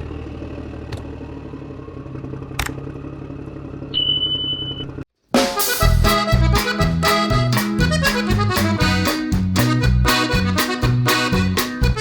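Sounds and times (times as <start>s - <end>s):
high beep: 4.0s - 5.0s
accordion music: 5.4s - 12.0s.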